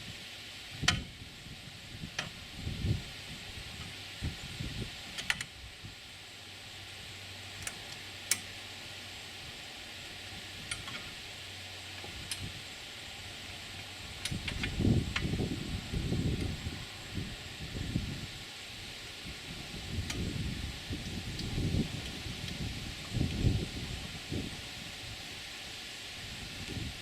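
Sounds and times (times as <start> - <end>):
steady hiss: 0.0 - 27.0
sharp metal clicks and taps: 7.6 - 8.5, 10.7 - 11.0.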